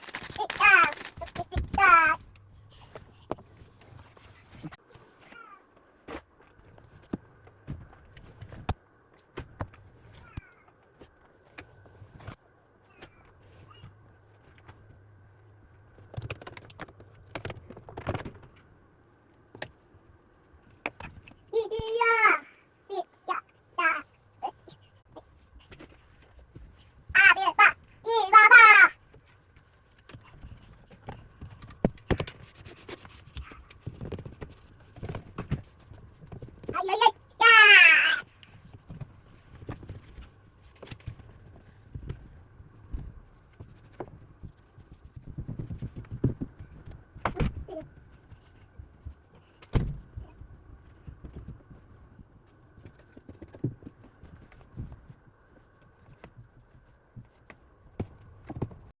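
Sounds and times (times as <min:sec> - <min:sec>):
faint steady hum: 0:00.0 - 0:58.9
objects knocking and thumping: 0:16.0 - 0:18.7, 0:29.1 - 0:37.1, 0:38.3 - 0:52.2.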